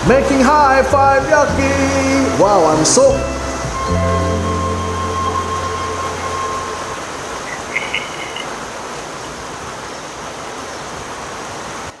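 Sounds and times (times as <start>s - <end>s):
rain falling: 0.0s - 12.0s
high chirp: 3.6s - 8.6s.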